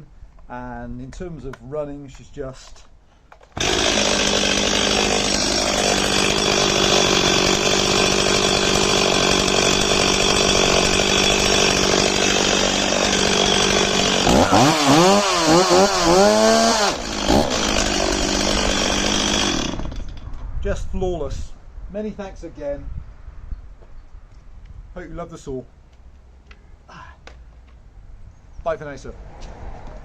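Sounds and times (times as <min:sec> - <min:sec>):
chainsaw running: 0:03.3 - 0:20.2
chainsaw throttle revving: 0:03.4 - 0:20.2.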